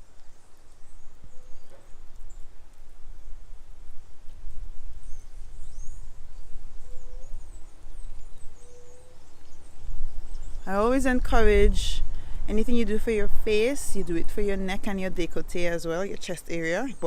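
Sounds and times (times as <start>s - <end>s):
faint high bird chirps: 5.0s - 10.7s.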